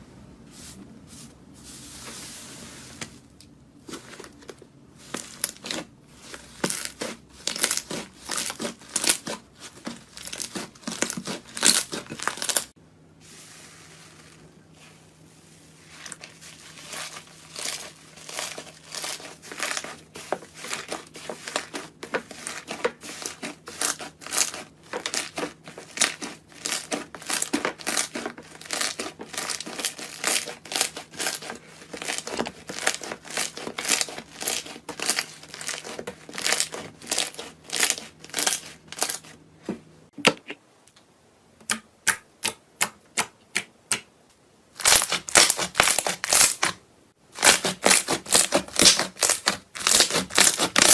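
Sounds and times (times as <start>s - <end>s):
crunchy material being crushed: 5.0s - 12.7s, 15.8s - 39.4s, 44.8s - 50.9s.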